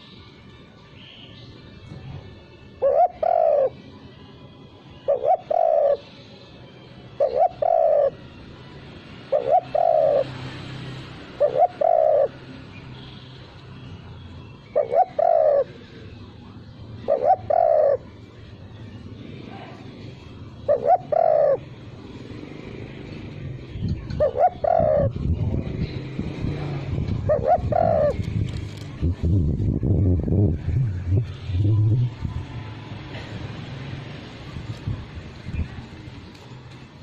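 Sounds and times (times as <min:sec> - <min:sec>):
dove cooing: 0:02.8 - 0:03.8, 0:04.9 - 0:06.2, 0:07.1 - 0:08.3, 0:09.2 - 0:10.5, 0:11.2 - 0:12.5, 0:14.7 - 0:16.1, 0:17.0 - 0:18.4, 0:20.5 - 0:21.8, 0:24.0 - 0:25.6, 0:26.9 - 0:28.3.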